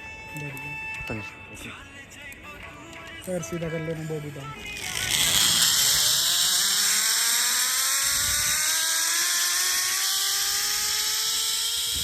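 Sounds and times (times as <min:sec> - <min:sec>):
zipline pulleys whining on cable: 0:04.4 - 0:12.0.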